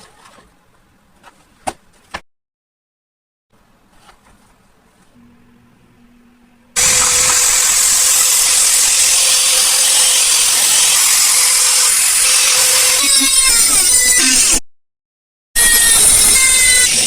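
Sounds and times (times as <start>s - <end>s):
machine hissing and humming: 5.2s - 13.1s.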